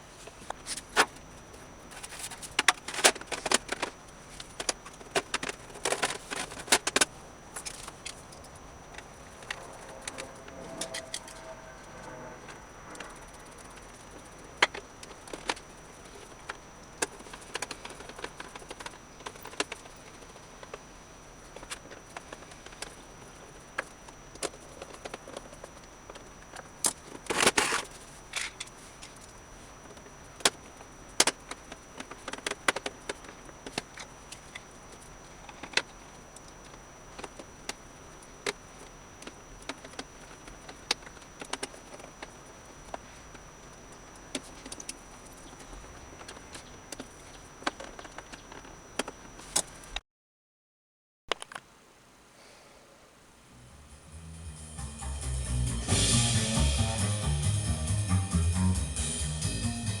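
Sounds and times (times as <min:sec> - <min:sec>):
clicks and clatter of small parts: 0:01.9 - 0:11.4, 0:23.8 - 0:37.8.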